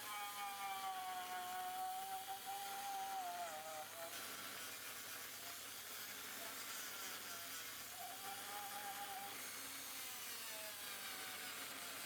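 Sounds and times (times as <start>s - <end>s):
rotary power tool polishing metal: 0.0s - 12.0s.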